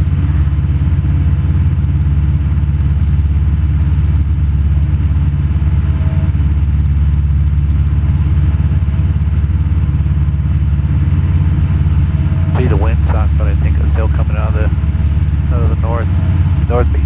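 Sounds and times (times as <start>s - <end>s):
airplane engine and propeller drone: 0.0s - 17.0s
airflow noise: 11.6s - 17.0s.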